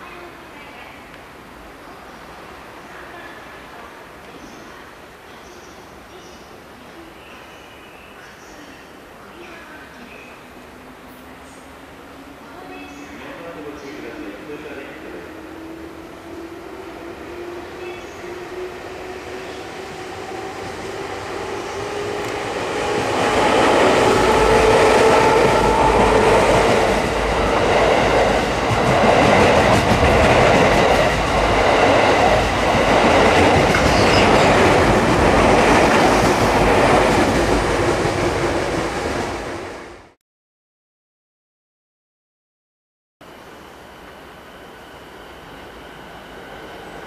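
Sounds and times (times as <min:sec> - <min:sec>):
electric train passing: 0:09.9 - 0:40.2, 0:43.2 - 0:47.0.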